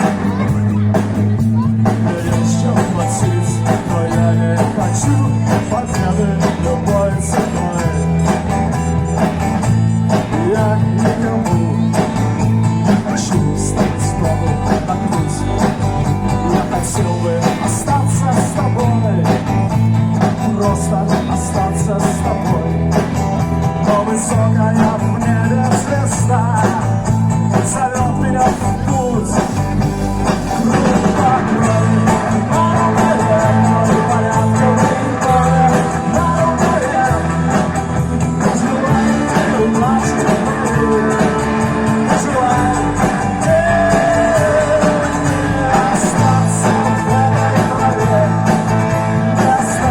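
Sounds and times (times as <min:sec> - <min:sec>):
bass guitar: 0:00.0 - 0:49.9
drum kit with cymbals: 0:00.0 - 0:49.9
electric guitar melody: 0:00.0 - 0:49.9.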